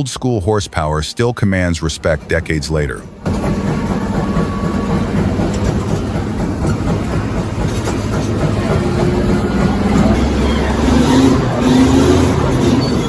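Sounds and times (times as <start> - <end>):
crawler dozers rumbling under load: 1.6 - 13.0.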